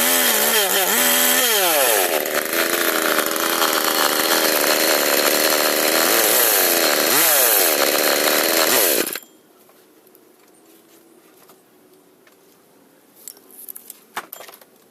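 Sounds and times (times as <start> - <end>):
chainsaw running at high revs: 0.0 - 9.2.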